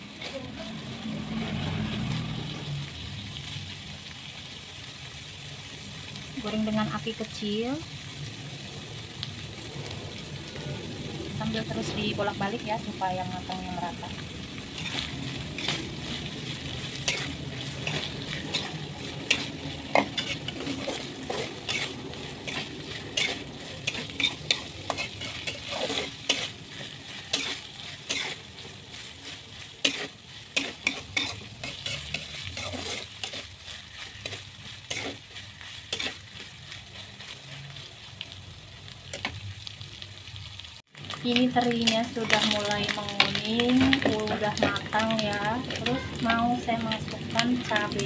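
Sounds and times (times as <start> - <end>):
food sizzling in oil: 0.0 - 48.0
metal spatula scraping a pan: 14.7 - 37.9.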